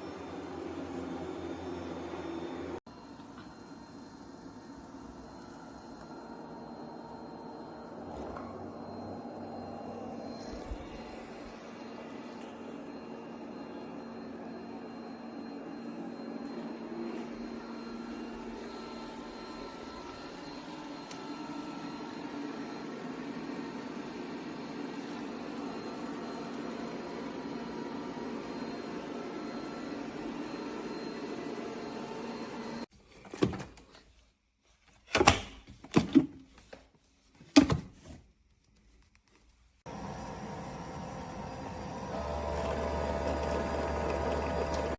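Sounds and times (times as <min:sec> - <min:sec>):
faint high whine: 0:00.0 - 0:32.9
thin tone: 0:00.0 - 0:32.9
robot vacuum motor hum: 0:39.9 - 0:44.9.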